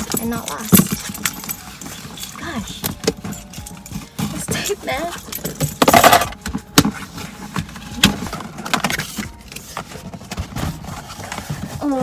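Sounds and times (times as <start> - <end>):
cardboard box rustling: 0.0 - 12.0
packing tape tearing: 6.3 - 12.0.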